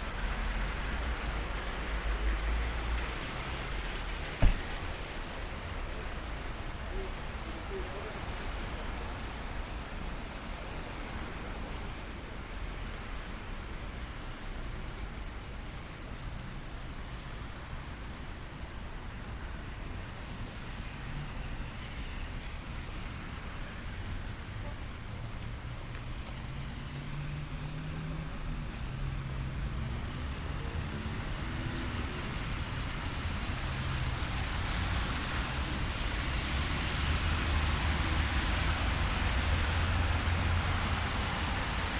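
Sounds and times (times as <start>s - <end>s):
low traffic rumble: 0.0s - 41.9s
rain hissing: 0.0s - 41.9s
passing vehicle engine: 26.4s - 41.9s.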